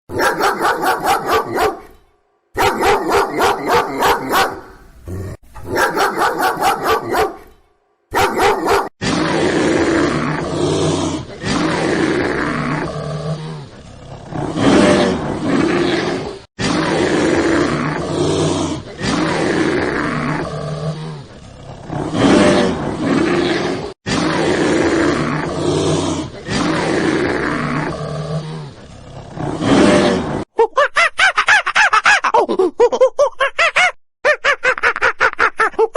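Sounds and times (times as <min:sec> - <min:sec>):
lion roaring and growling: 0:02.6 - 0:07.6, 0:08.2 - 0:30.5.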